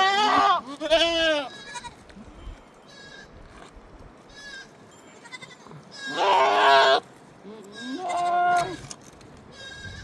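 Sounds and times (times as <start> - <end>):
livestock bleating: 0.0 - 2.0, 2.9 - 3.3, 4.3 - 8.8, 9.5 - 10.0.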